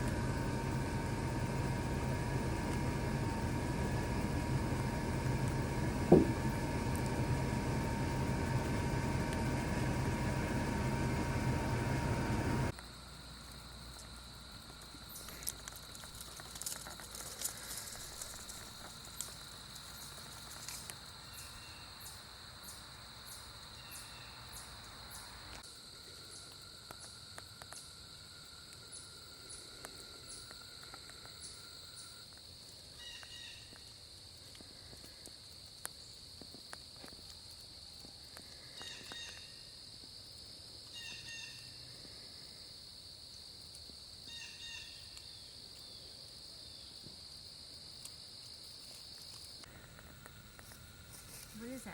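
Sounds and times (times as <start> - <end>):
low rumble: 0.0 - 12.7
high-pitched insect drone: 0.0 - 42.7.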